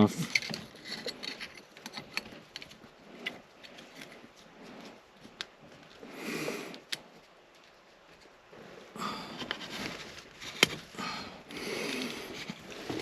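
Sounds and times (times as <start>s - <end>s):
hands handling fan housing clicks: 0.0s - 4.2s, 10.4s - 10.9s.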